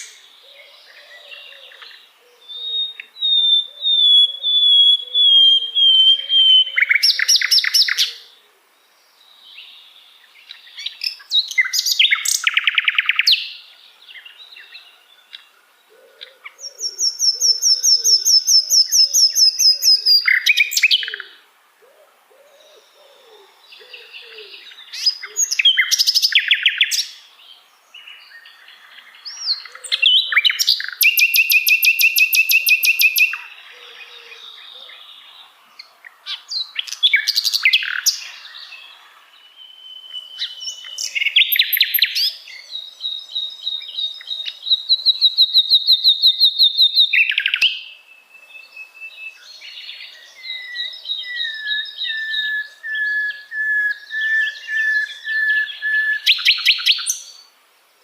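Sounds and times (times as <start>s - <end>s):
nightingale singing: 0.0s - 57.6s.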